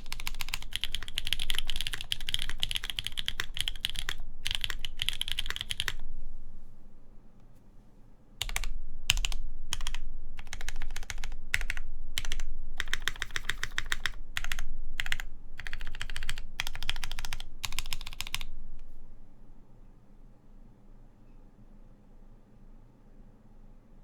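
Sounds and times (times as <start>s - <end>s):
typing on mechanical keyboard: 0.0s - 6.0s, 8.4s - 18.5s.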